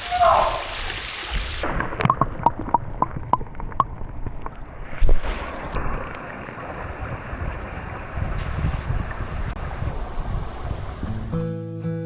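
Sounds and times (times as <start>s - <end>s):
water drips splashing: 0.0s - 11.3s
moving water: 0.0s - 11.4s
wind buffeting microphone: 3.4s - 11.4s.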